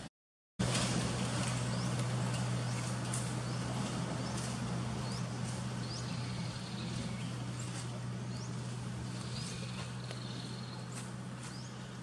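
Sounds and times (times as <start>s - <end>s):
steady low hum: 0.6s - 12.0s
high rising bird chirps: 8.3s - 11.8s.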